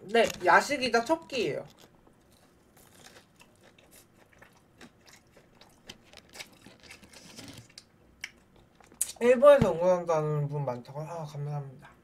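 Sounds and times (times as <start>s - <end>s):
person chewing crispy food: 0.1s - 9.2s.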